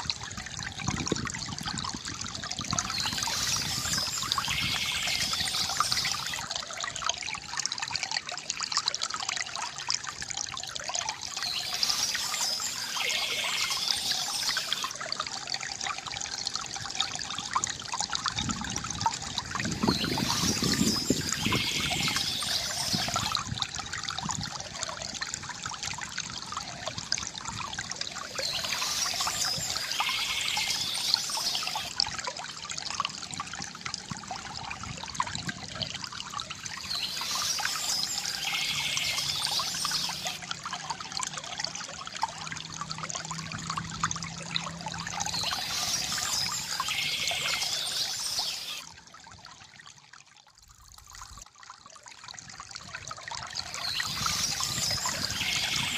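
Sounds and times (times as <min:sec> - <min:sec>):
stream trickling and splashing: 0:00.0 - 0:55.9.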